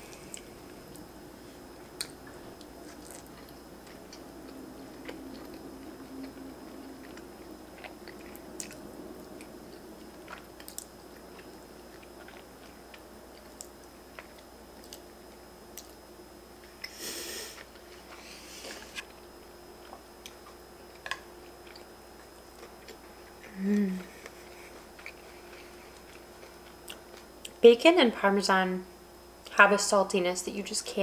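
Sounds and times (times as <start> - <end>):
chewing noodles: 2.0 - 15.1, 19.8 - 27.3.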